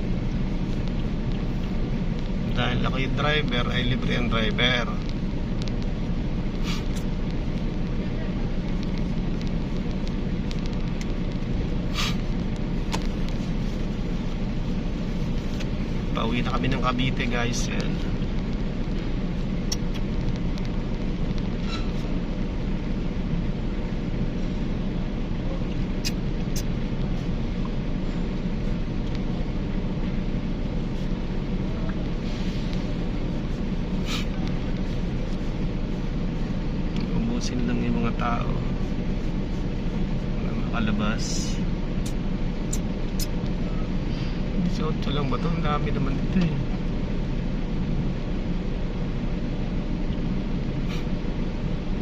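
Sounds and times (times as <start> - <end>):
low engine rumble: 0.0 - 52.0
short hiss: 6.6 - 7.0, 11.9 - 12.2.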